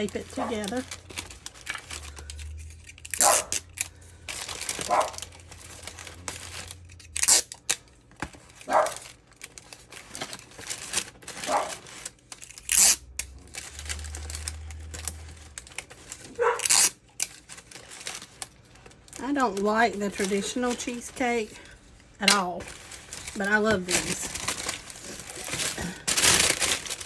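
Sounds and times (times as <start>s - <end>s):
cardboard box crinkling: 0.0s - 27.0s
wax paper crinkling: 0.0s - 27.0s
adhesive tape pulled and torn: 1.1s - 3.9s, 6.5s - 7.8s, 10.9s - 18.2s.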